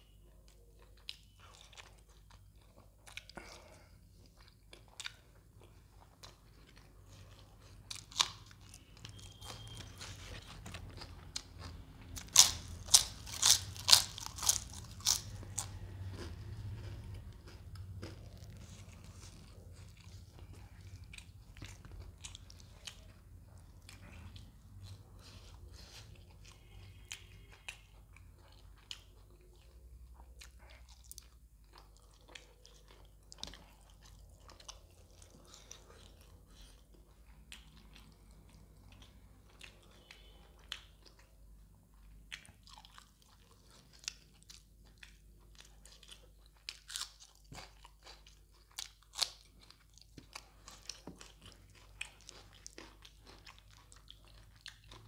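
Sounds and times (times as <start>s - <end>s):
wet chewing: 0.5s - 55.0s
crunchy bites: 7.9s - 19.6s.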